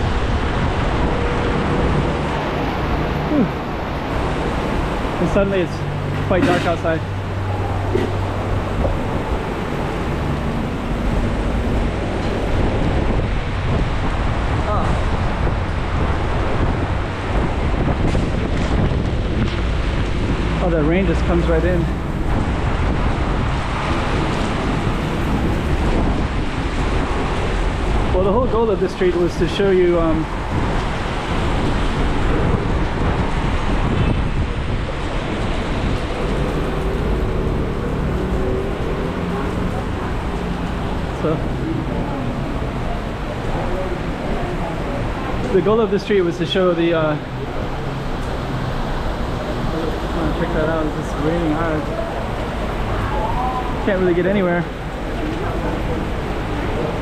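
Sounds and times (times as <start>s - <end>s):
passing vehicle hum: 0.0s - 17.8s, 30.3s - 45.6s
heavy rain pouring: 0.0s - 57.0s.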